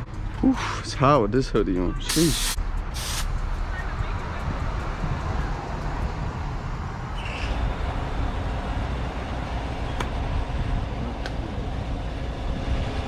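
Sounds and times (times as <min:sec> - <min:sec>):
street traffic rumble: 0:00.0 - 0:13.0
short hiss: 0:02.1 - 0:03.4.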